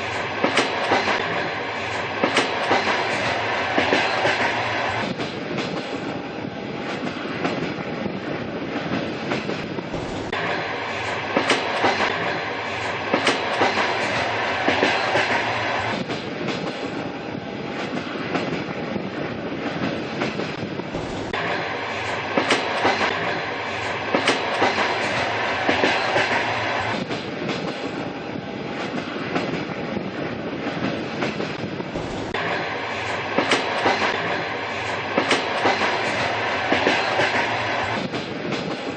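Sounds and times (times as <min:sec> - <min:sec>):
wheels clacking over rail joints: 0:00.0 - 0:06.1, 0:08.8 - 0:17.0, 0:19.6 - 0:28.1, 0:30.7 - 0:38.9
train rumbling on track: 0:00.0 - 0:38.9.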